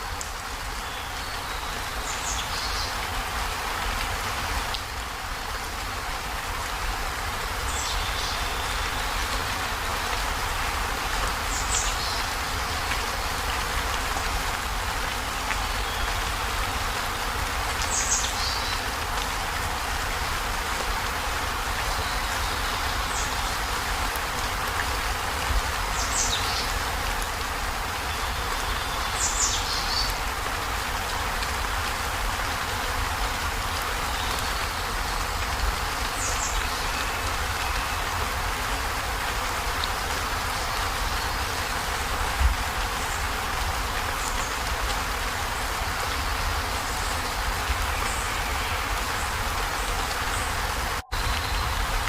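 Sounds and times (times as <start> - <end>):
heavy rain on metal roof: 0.0 - 52.0.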